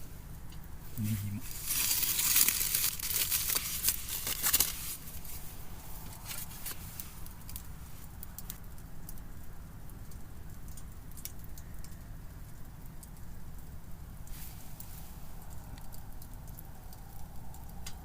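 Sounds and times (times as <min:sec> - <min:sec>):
fat crackling and popping: 0:00.0 - 0:18.0
loud noisy rustle: 0:00.9 - 0:08.1.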